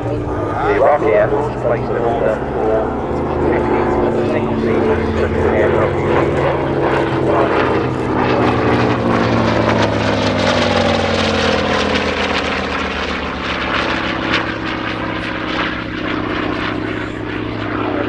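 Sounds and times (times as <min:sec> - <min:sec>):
propeller aircraft engine droning: 0:00.0 - 0:18.0.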